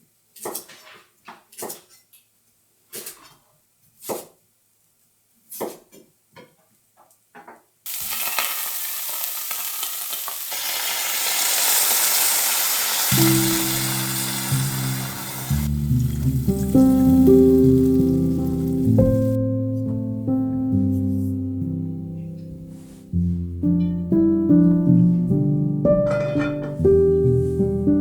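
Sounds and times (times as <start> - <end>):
meat and vegetables sizzling: 7.9 - 19.4
utensil scraping in pan: 7.9 - 19.4.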